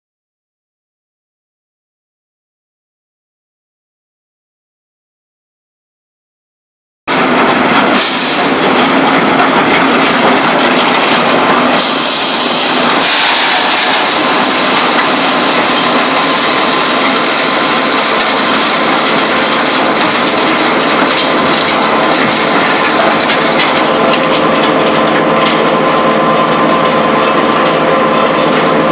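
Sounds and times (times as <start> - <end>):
concrete plant machinery clattering: 7.1 - 28.9.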